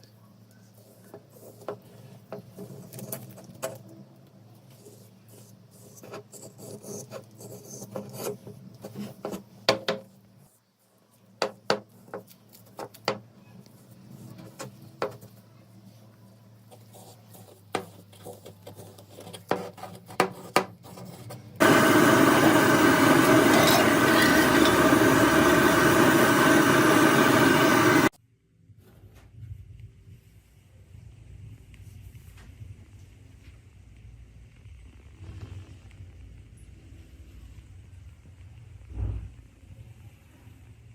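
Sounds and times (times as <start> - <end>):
motor-driven power tool running: 21.6 - 28.1.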